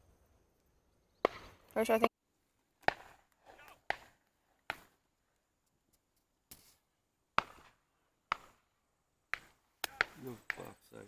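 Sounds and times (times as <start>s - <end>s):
sharp chopping blows: 2.8s - 4.9s, 7.4s - 8.6s, 9.3s - 10.7s.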